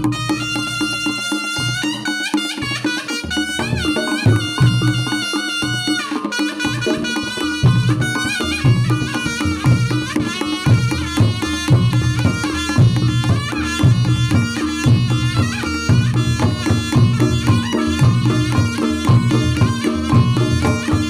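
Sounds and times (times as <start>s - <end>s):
hand drumming: 0.0s - 21.0s
shrill shawm melody: 0.0s - 21.0s.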